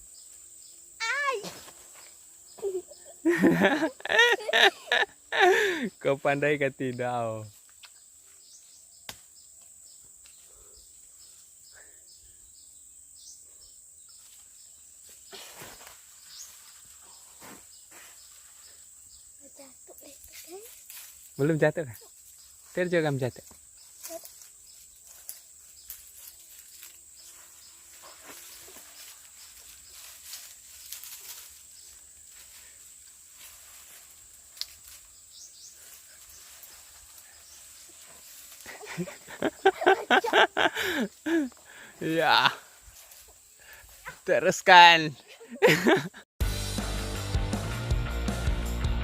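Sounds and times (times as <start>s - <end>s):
short insect chirps: 6.9s - 44.8s
rustling scraping noises: 23.8s - 35.2s.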